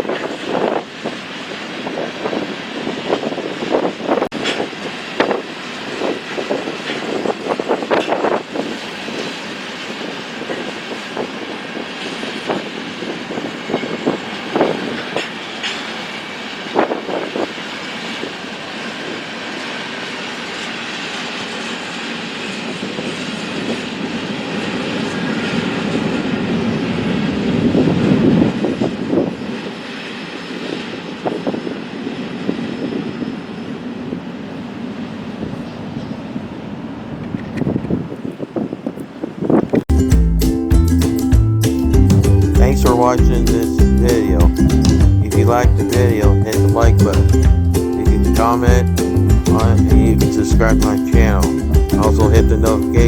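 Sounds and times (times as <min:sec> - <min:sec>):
train cars rumbling on rails: 0:00.0 - 0:40.4, 0:41.2 - 0:53.0.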